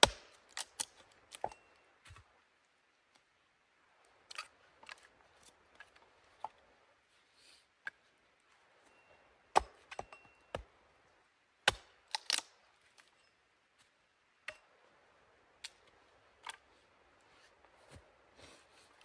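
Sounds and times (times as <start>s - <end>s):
sharp knocks and cracks: 0.0s - 1.6s.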